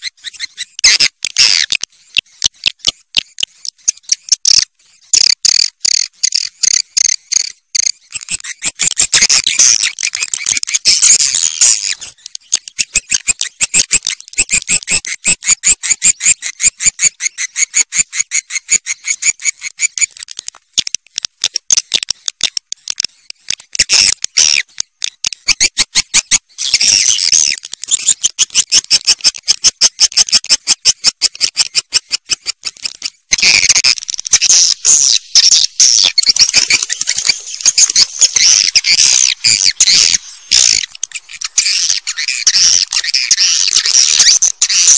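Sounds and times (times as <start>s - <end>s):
swiftlets twittering: 33.8s - 44.9s.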